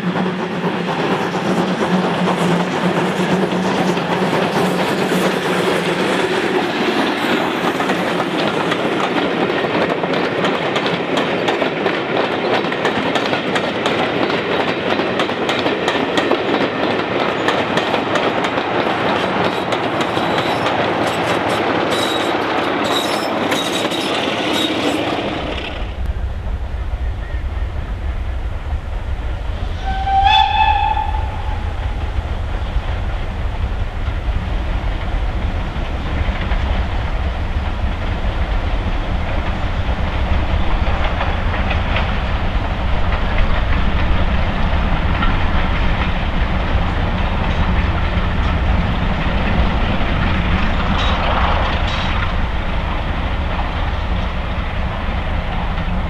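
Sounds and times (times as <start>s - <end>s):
train rumbling past: 0.0s - 56.0s
locomotive whistle: 29.7s - 31.8s.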